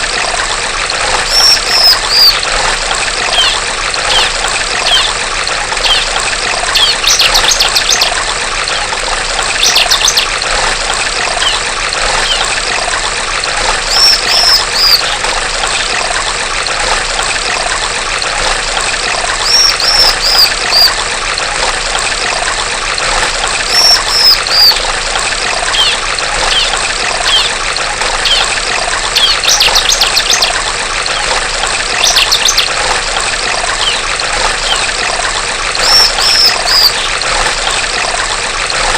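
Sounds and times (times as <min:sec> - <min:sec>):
stream water trickling: 0:00.0 - 0:38.9
bird high chirps: 0:01.3 - 0:02.4, 0:03.3 - 0:04.3, 0:04.9 - 0:05.1, 0:05.8 - 0:06.1, 0:09.6 - 0:10.3, 0:11.4 - 0:11.6, 0:13.9 - 0:15.2, 0:19.4 - 0:20.9, 0:23.7 - 0:24.8, 0:25.7 - 0:26.7, 0:27.3 - 0:27.5, 0:29.2 - 0:30.5, 0:32.0 - 0:32.7, 0:33.8 - 0:34.0, 0:35.8 - 0:37.1.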